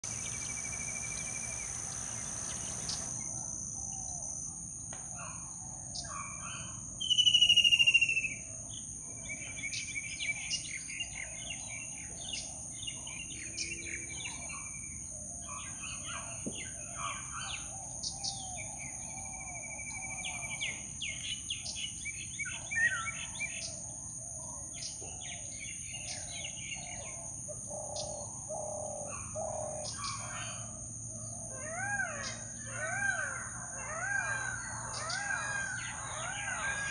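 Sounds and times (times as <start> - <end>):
loud falling bird call: 0.0 - 3.3
birds chirping and trilling: 0.0 - 4.3, 31.4 - 36.9
high insect drone: 0.0 - 5.1.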